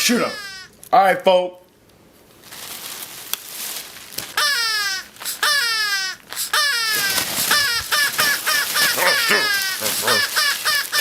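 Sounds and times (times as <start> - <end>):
shrill squawking cries: 0.0 - 0.8, 4.3 - 11.0.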